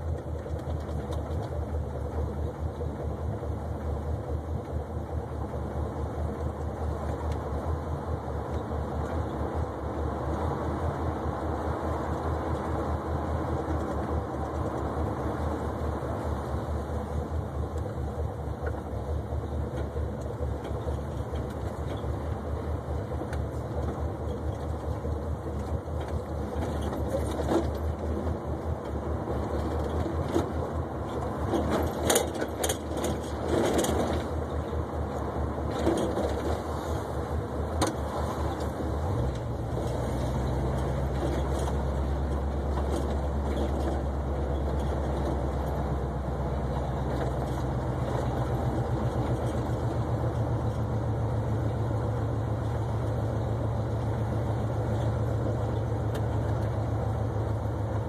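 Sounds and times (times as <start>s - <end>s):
car engine rumbling: 0.0s - 58.0s
sharp clicks and knocks: 23.1s - 36.6s.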